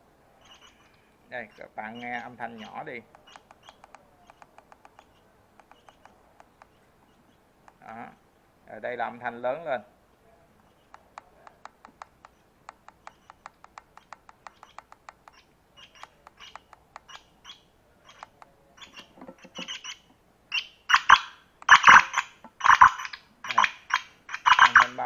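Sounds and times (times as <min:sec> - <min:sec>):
faint ticking bird notes: 0:00.0 - 0:08.3, 0:10.6 - 0:25.0
recorded bird chirps from speaker: 0:00.4 - 0:07.4, 0:14.5 - 0:25.0.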